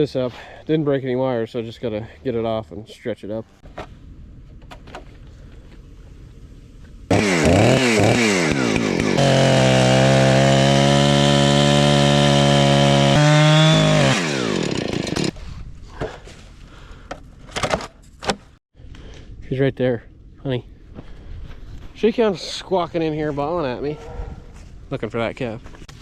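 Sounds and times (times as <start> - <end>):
chainsaw cutting wood: 7.1 - 15.4.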